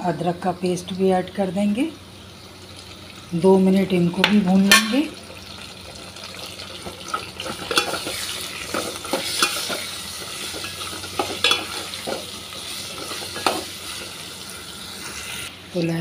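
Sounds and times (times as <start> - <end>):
potatoes sizzling in hot oil: 1.4 - 16.0
metal spoon scraping a pot: 7.4 - 14.2.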